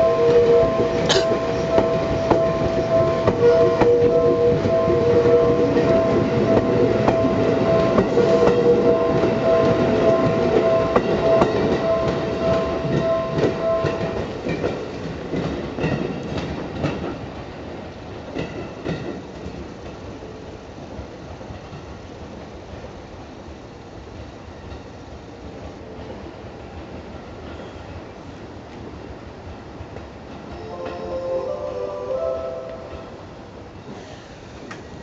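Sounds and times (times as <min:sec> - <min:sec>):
steady high tone: 0:00.0 - 0:14.5, 0:30.5 - 0:33.7
railway cars clacking over rail joints: 0:00.0 - 0:20.1.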